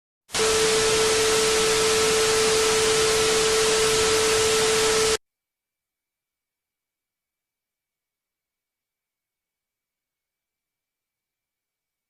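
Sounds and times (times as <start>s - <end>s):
static hiss: 0.3s - 5.2s
steady tone: 0.4s - 5.2s.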